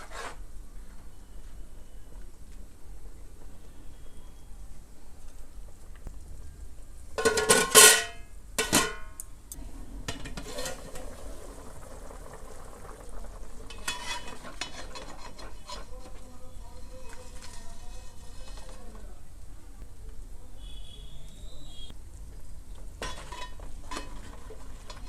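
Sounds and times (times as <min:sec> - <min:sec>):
faint sizzle: 0:00.4 - 0:25.0
metal spoon scraping a pan: 0:10.1 - 0:11.0, 0:13.6 - 0:19.0, 0:23.0 - 0:25.0.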